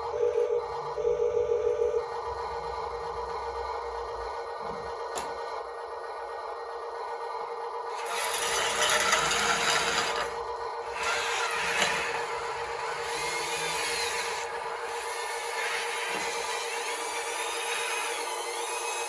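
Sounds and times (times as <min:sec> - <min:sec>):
hydraulic pump whine: 0:00.0 - 0:19.0
machine scraping and grinding dirt: 0:07.9 - 0:14.4.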